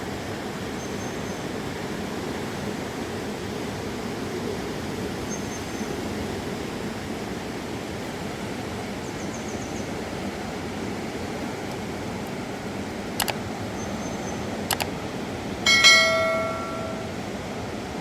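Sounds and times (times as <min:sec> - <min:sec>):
river rushing: 0:14.4 - 0:18.0.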